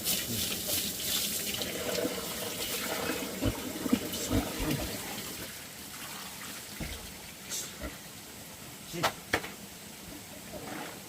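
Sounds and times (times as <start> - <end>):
tap water running into basin: 0.0 - 8.0.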